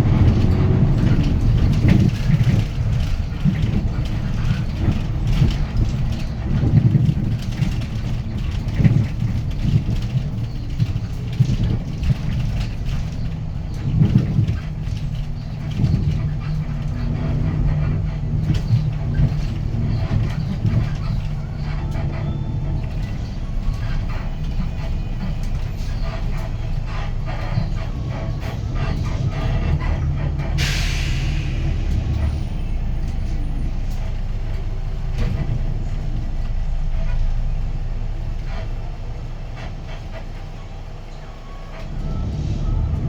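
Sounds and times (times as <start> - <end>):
bus diesel engine running: 0.0 - 43.0
road noise: 0.0 - 43.0
air brake hiss: 30.6 - 32.0.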